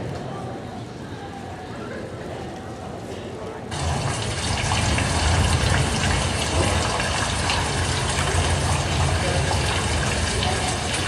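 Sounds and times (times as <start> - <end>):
rushing rain over loudspeakers: 3.7 - 11.0.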